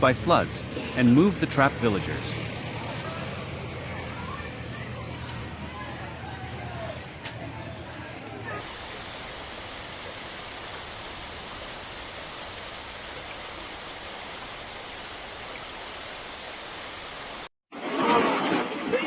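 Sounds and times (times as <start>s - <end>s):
voices: 0.0s - 8.7s
rushing floodwater: 0.0s - 19.0s.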